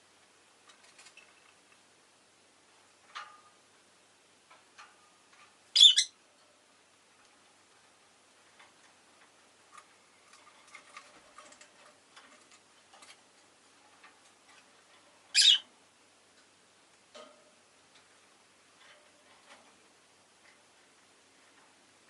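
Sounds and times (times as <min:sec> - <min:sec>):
lovebird chirping: 0:05.7 - 0:06.2, 0:15.3 - 0:15.7.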